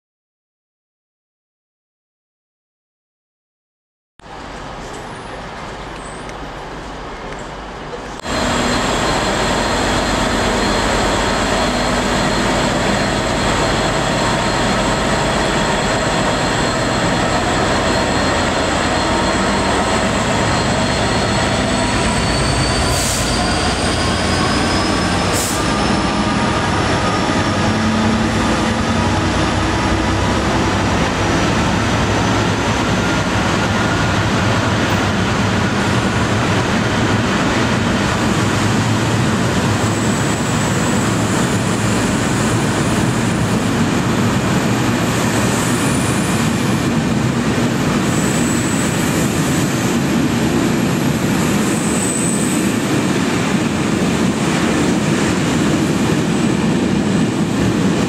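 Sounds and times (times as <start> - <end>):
diesel locomotive engine: 4.2 - 58.0
wagons rumbling over rails: 4.3 - 58.0
high-pitched wheel squeal: 8.3 - 29.3, 48.0 - 49.9, 51.4 - 52.8.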